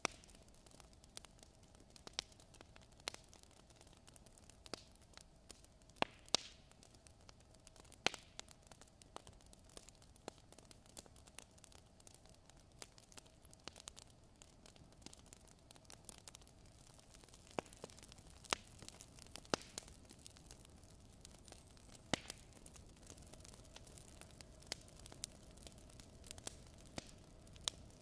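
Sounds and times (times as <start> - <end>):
fire crackling and popping: 0.0 - 28.0.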